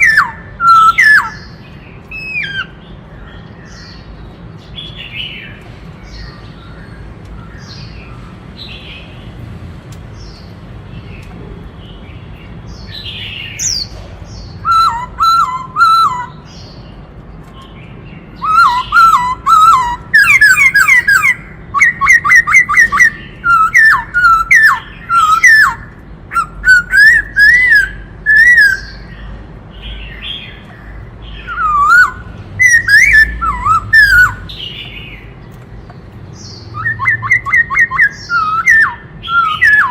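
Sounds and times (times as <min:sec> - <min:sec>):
bird singing whistled phrases: 0:00.0 - 0:02.8, 0:14.5 - 0:16.7, 0:18.4 - 0:29.2, 0:31.3 - 0:35.2, 0:36.4 - 0:39.9
soft high bird calls: 0:00.0 - 0:09.2, 0:10.1 - 0:39.9.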